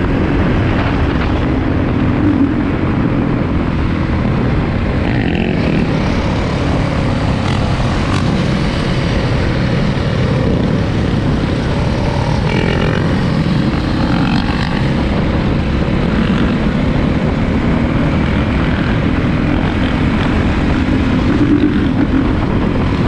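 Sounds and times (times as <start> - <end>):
dirt bike engine running: 0.0 - 23.0.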